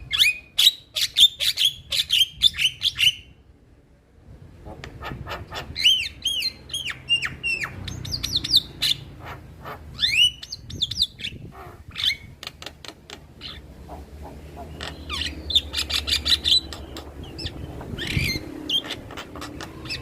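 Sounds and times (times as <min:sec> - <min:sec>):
bird singing whistles and clicks: 0:14.8 - 0:20.0.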